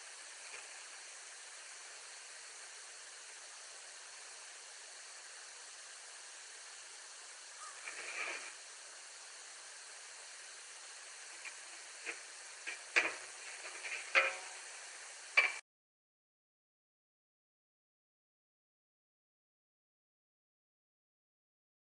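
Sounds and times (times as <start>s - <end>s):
background hiss: 0.0s - 15.6s.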